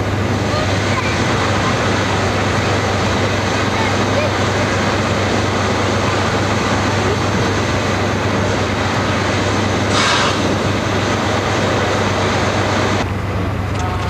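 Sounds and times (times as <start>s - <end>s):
steam train running: 0.0s - 14.0s
steam hiss burst: 9.0s - 13.0s.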